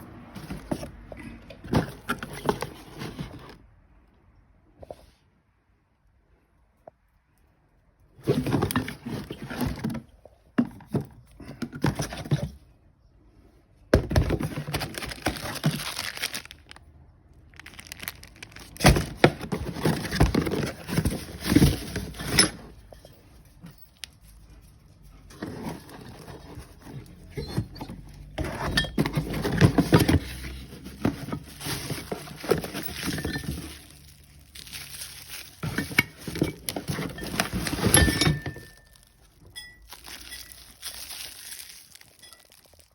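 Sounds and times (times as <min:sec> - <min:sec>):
packaging rustling and crinkling: 0:14.0 - 0:42.9
parts knocking when set down: 0:35.6 - 0:38.9.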